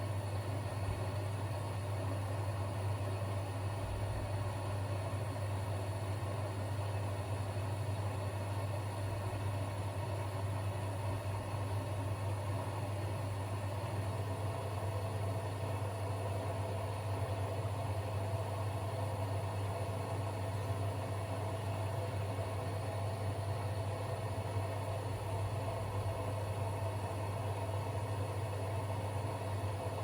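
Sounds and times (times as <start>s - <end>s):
washing machines and dryers humming: 0.0s - 30.0s.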